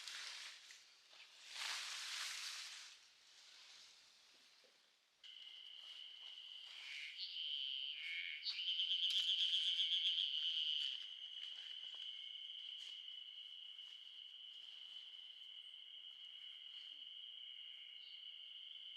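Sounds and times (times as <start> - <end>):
insects trilling: 5.3 - 18.9
rapidly pulsing insect trill: 5.3 - 18.9
short insect chirps: 5.3 - 18.9.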